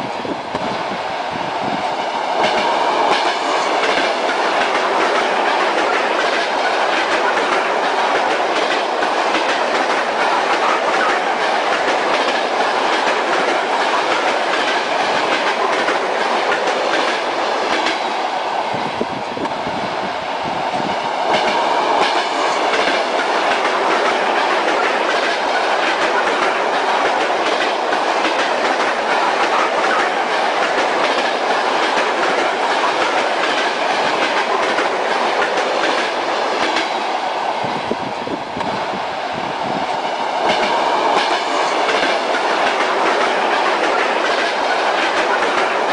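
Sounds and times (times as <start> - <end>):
train rumble: 0.0 - 45.9
train wheels clickety-clack: 0.0 - 45.9.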